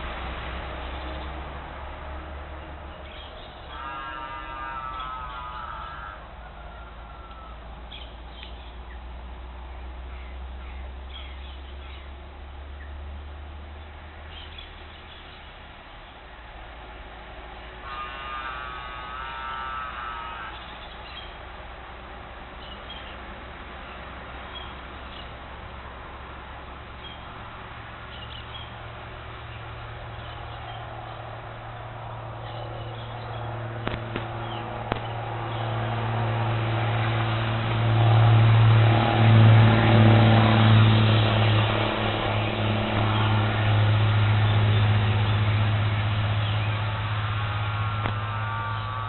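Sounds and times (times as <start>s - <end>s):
bird giving long wavering call: 3.0s - 8.2s, 17.8s - 21.4s, 46.1s - 49.0s
steady low hum: 4.4s - 49.0s
vehicle engine running: 21.0s - 49.0s.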